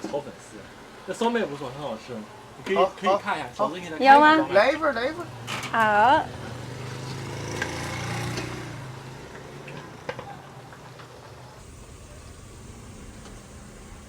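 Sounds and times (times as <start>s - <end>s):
vehicle engine passing by: 5.2s - 10.0s.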